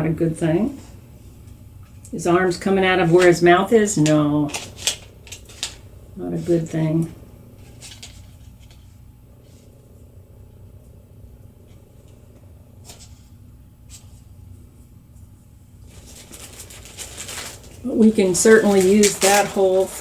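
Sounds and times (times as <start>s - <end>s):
low room hum: 0.0s - 20.0s
rustling: 0.7s - 20.0s
light clicks of snacks handled: 4.0s - 5.9s.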